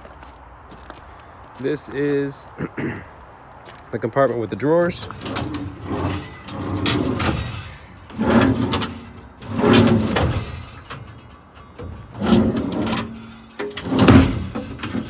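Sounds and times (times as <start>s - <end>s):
metal drawers scraping on slides: 4.5s - 15.0s.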